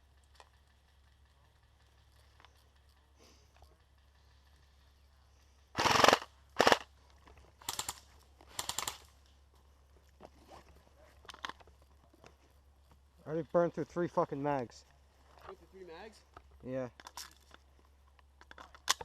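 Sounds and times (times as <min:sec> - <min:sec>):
airsoft rifle bursts: 0:05.7 - 0:07.0, 0:07.6 - 0:09.2.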